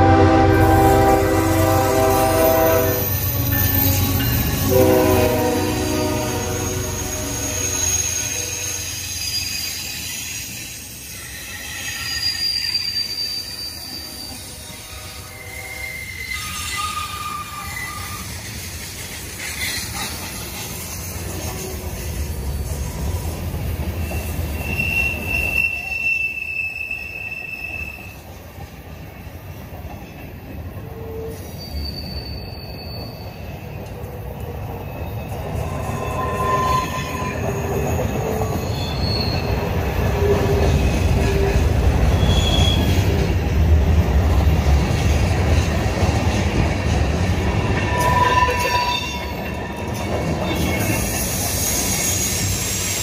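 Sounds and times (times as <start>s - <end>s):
high-pitched wheel squeals: 1.6s - 18.6s, 23.9s - 28.2s, 30.9s - 33.7s, 35.6s - 43.2s, 47.6s - 53.0s.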